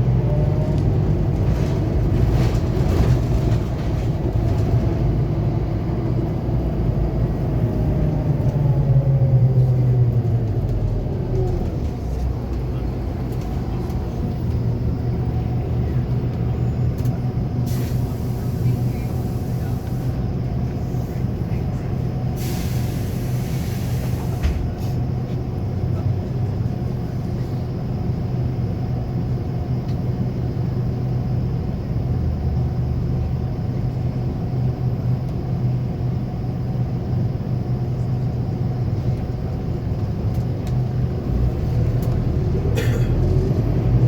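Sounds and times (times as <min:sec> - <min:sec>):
bus diesel engine drone: 0:00.0 - 0:44.0
compressed air hiss: 0:22.4 - 0:24.4.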